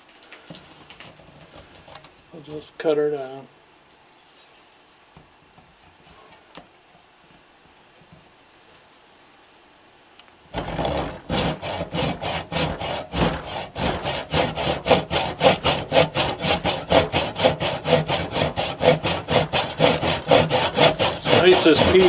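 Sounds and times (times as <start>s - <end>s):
hand saw cutting plastic: 10.5s - 22.0s.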